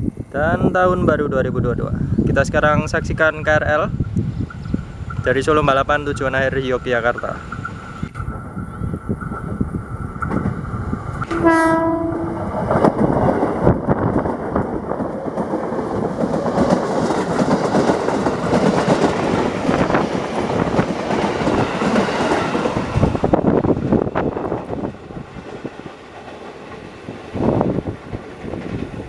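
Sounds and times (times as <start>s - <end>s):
train rumbling past: 0.0s - 29.0s
train horn blast: 11.2s - 12.5s.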